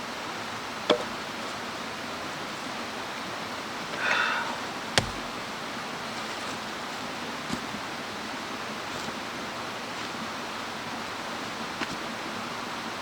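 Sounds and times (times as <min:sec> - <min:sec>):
low thump: 0:05.0 - 0:05.4.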